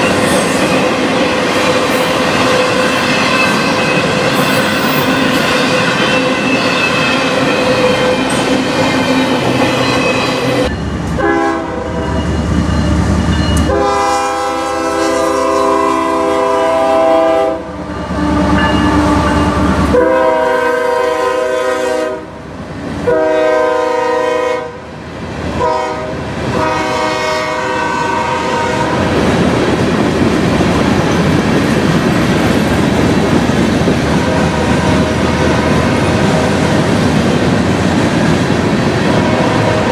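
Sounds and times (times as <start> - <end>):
train wheels rumbling and clacking: 0.0 - 16.8, 25.1 - 39.9
locomotive air horn blasts: 11.2 - 12.1, 13.6 - 22.3, 23.0 - 24.8, 25.6 - 29.1.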